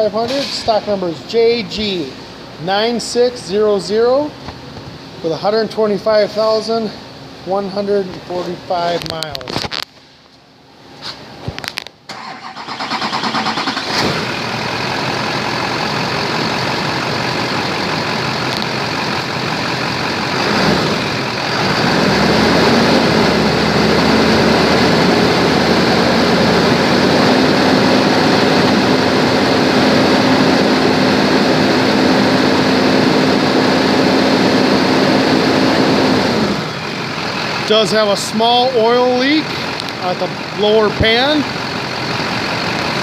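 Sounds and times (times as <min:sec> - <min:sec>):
engine cranking and starting: 0:12.1 - 0:17.4
engine idling: 0:12.1 - 0:43.0.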